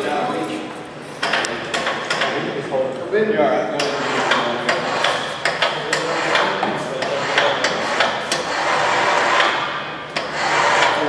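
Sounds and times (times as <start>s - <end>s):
steady background noise: 0.0s - 11.0s
hammering knocks: 1.2s - 2.6s, 3.8s - 11.0s.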